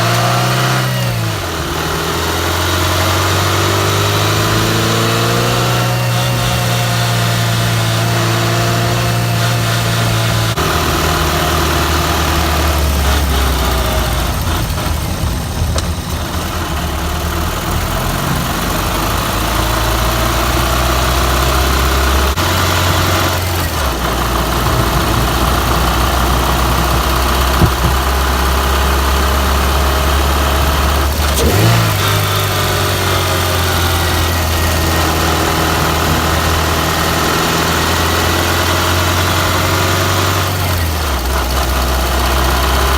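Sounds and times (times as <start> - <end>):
car engine revving: 0.0 - 42.9.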